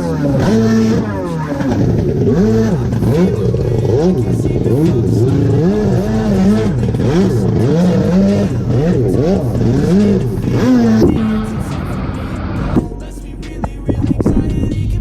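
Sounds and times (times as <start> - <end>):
jet ski engine revving: 0.0 - 13.8.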